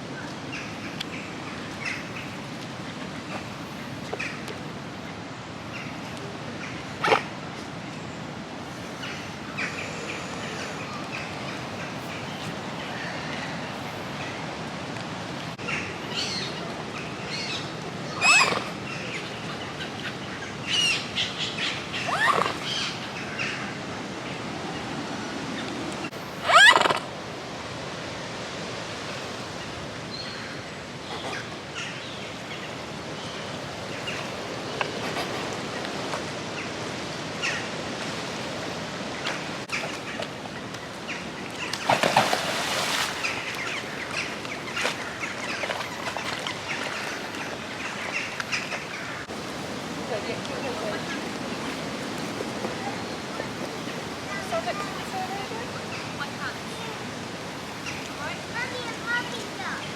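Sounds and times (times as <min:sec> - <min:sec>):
outdoor background rush: 0:00.0 - 0:59.9
birds calling: 0:15.6 - 0:25.0, 0:25.6 - 0:27.2, 0:39.1 - 0:57.0.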